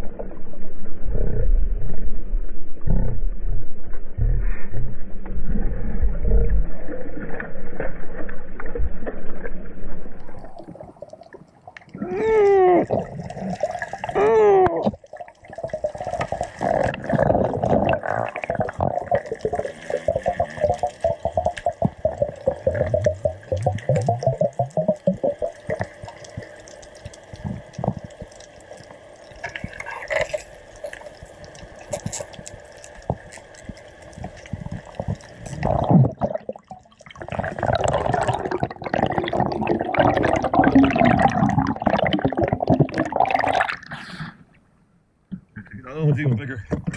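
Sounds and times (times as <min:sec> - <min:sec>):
water at the surface: 0:00.0 - 0:46.9
underwater wash with crackling clicks: 0:14.8 - 0:43.9.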